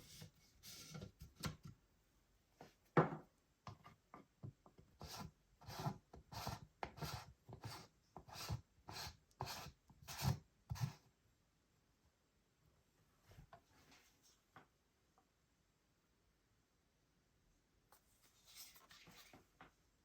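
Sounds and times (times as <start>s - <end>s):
hands scraping an item: 5.0s - 11.0s.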